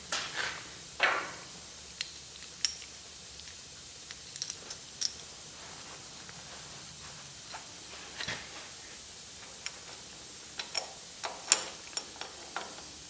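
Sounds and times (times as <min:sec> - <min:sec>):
metallic clicks and clinks: 0:01.9 - 0:05.3, 0:10.6 - 0:13.0.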